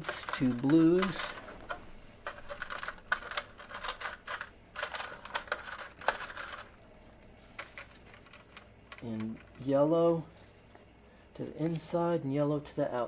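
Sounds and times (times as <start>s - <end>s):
wires and connectors clicking: 0.0s - 9.7s.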